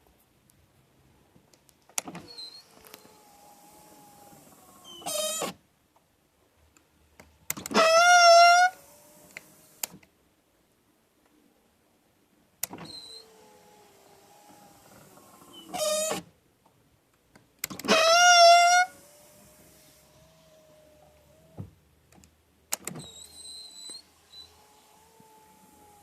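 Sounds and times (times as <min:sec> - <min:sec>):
power window motor running: 0:02.0 - 0:05.6, 0:07.6 - 0:09.9, 0:12.6 - 0:16.2, 0:17.7 - 0:21.7, 0:22.8 - 0:26.0
window regulator squeaking: 0:02.0 - 0:05.6, 0:07.5 - 0:09.8, 0:12.6 - 0:16.3, 0:17.6 - 0:21.7, 0:22.8 - 0:26.0.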